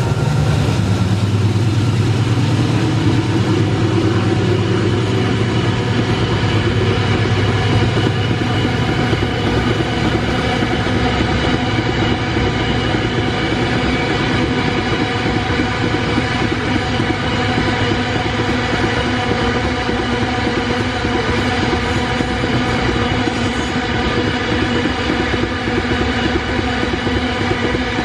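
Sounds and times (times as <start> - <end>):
locomotive engine drone: 0.0 - 28.0
train wheels clattering on rails: 0.0 - 28.0.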